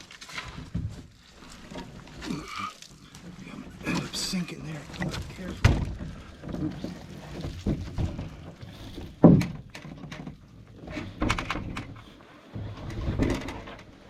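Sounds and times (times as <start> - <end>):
dull thunks and knocks: 4.9 - 13.9.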